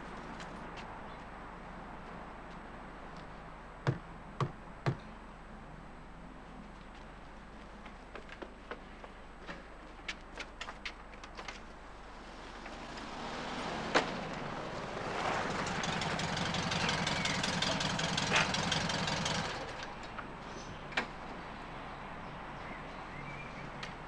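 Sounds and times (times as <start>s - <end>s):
sharp knocks: 3.8s - 5.0s
car engine starting and running: 12.2s - 20.1s.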